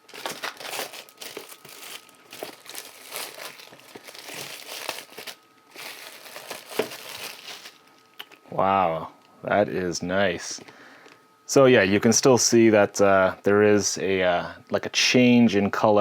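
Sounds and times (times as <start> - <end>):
plastic shrink-wrap crinkling: 0.0 - 8.0.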